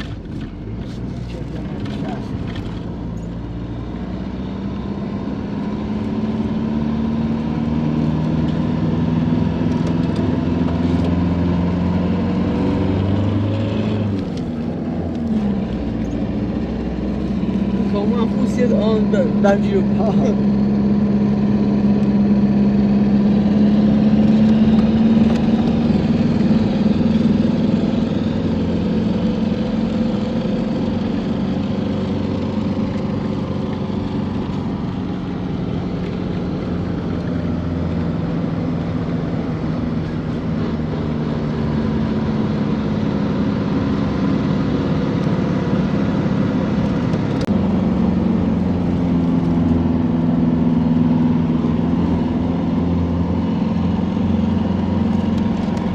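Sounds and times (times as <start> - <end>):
truck engine running: 0.0 - 55.9.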